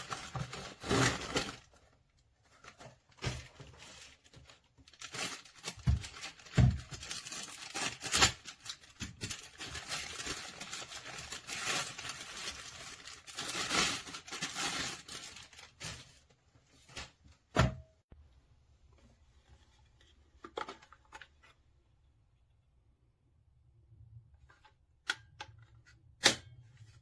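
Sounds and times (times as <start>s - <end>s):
packaging rustling and crinkling: 0.0s - 17.2s.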